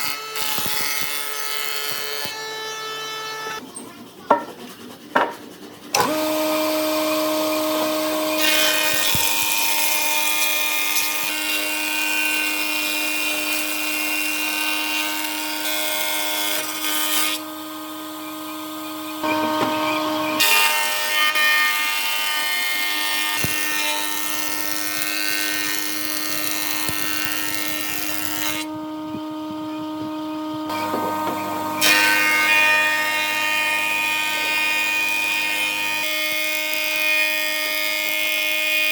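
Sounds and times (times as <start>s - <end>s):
electric power tool whining: 5.9s - 15.6s, 16.6s - 21.9s, 22.8s - 38.9s.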